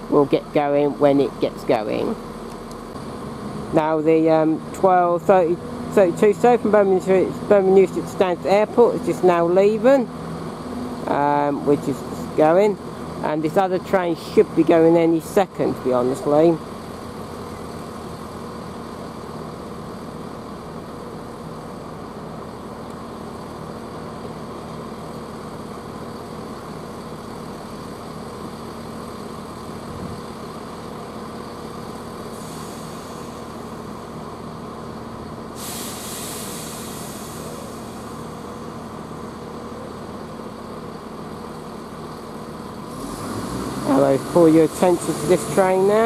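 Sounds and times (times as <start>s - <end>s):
train diesel engine idling: 0.0s - 43.0s, 43.8s - 46.0s
compressed air hissing: 32.3s - 33.8s, 35.5s - 38.7s.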